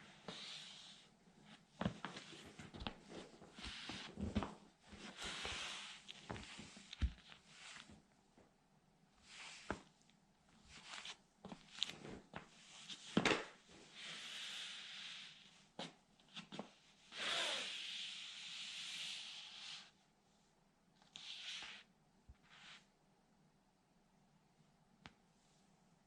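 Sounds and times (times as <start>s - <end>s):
scraping rubs on floor: 0.2s - 8.0s.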